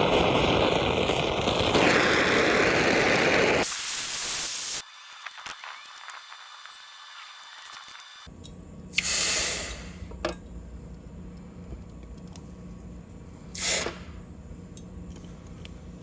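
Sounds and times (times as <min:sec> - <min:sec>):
hissing bursts: 0:00.0 - 0:08.3, 0:13.5 - 0:14.1
low steady hum: 0:08.3 - 0:16.0.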